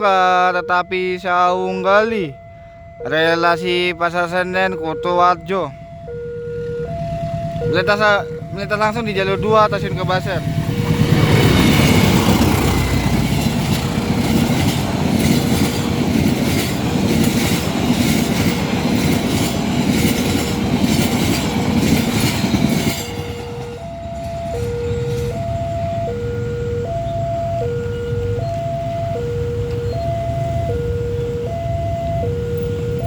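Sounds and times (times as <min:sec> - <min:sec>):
two-tone electronic warning alarm: 0:00.0 - 0:33.0
train carriages clattering over rails: 0:08.3 - 0:26.2.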